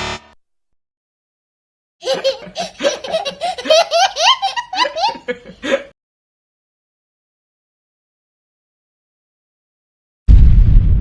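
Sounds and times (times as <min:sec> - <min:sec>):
high-pitched laughter: 0:02.0 - 0:05.9.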